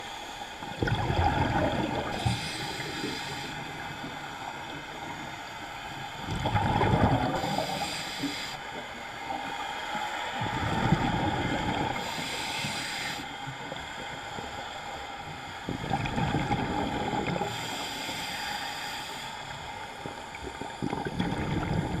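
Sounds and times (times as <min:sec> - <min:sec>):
exhaled bubbles underwater: 0:00.6 - 0:05.3, 0:06.1 - 0:08.9, 0:10.4 - 0:12.4, 0:15.7 - 0:17.8, 0:20.0 - 0:22.0
regulator air hiss: 0:02.0 - 0:06.2, 0:07.2 - 0:10.5, 0:11.7 - 0:15.8, 0:17.4 - 0:20.3.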